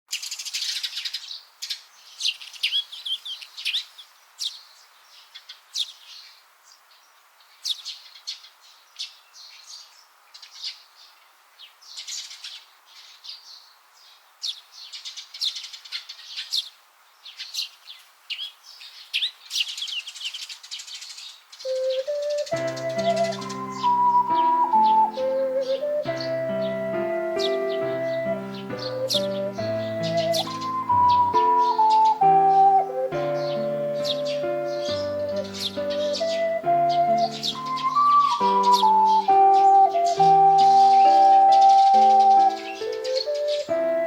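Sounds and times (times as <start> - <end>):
songbirds chirping: 0.1 - 44.0
ocarina melody: 21.6 - 44.0.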